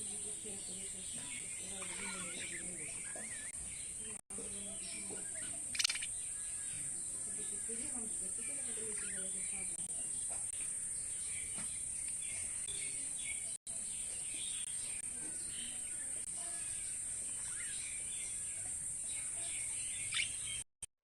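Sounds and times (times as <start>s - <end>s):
budgerigars chirping: 0.4s - 4.1s, 4.7s - 9.8s, 19.3s - 20.6s.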